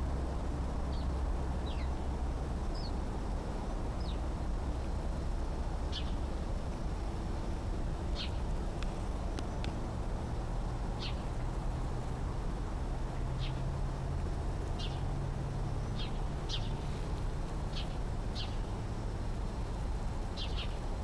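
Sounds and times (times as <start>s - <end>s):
bird chirping: 0.9s - 2.1s, 5.8s - 6.3s, 8.1s - 9.8s, 10.9s - 11.4s, 13.2s - 13.7s, 14.7s - 17.0s, 17.6s - 18.8s, 20.3s - 20.9s.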